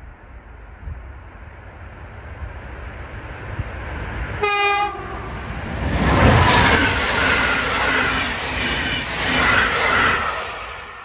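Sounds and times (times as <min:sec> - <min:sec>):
train wheels on rails: 0:00.0 - 0:11.0
train horn blast: 0:04.4 - 0:05.3.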